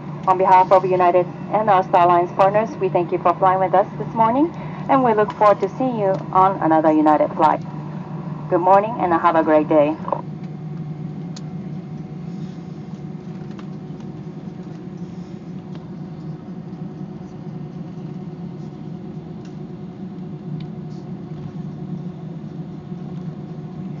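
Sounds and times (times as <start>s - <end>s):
steady tones: 0.0s - 10.2s
cabin air: 0.0s - 21.6s
jet engines idling: 0.0s - 24.0s
low hum: 0.0s - 24.0s.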